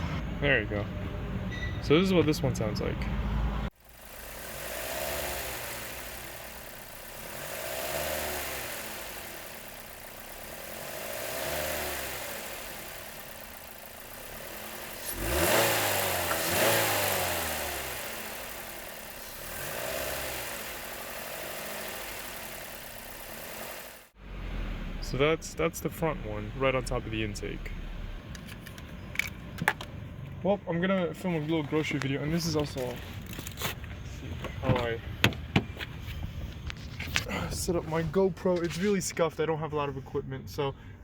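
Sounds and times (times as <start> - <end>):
car engine and intake revving: 2.2 - 30.0.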